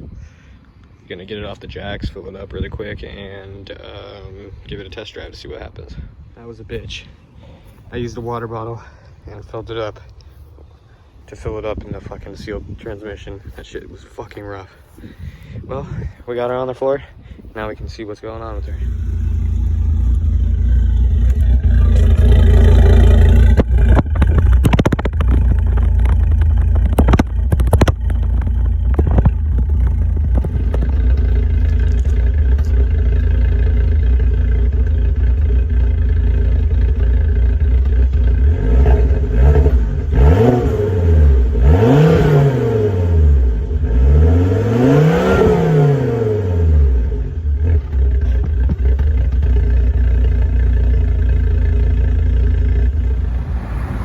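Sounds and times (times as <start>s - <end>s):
car engine rumbling and revving: 17.6s - 54.0s.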